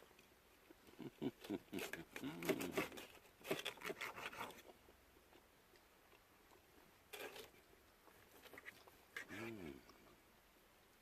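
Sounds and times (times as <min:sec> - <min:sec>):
crackly eating rasps and clicks: 0:00.0 - 0:10.2.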